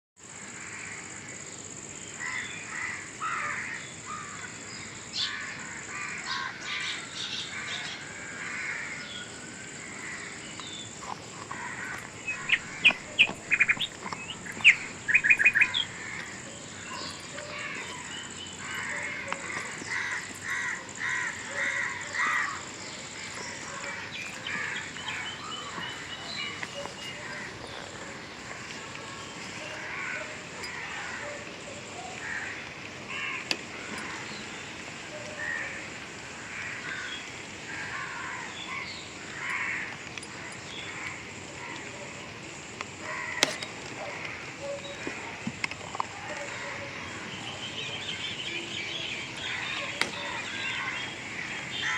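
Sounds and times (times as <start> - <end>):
harsh bird calls: 2.1 - 51.9.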